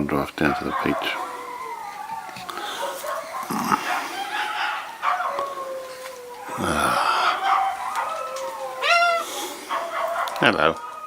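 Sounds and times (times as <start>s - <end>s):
dogs howling: 0.0s - 11.0s.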